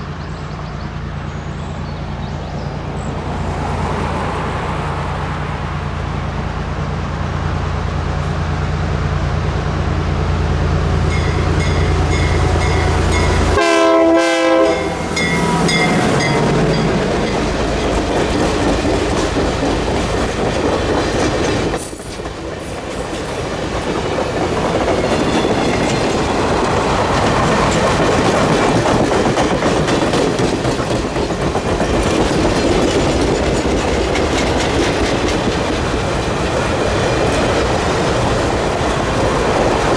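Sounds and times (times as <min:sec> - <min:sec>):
train cars clacking over rails: 0:00.0 - 0:39.9
train engine hum: 0:00.0 - 0:39.9
train horn blast: 0:11.1 - 0:17.4.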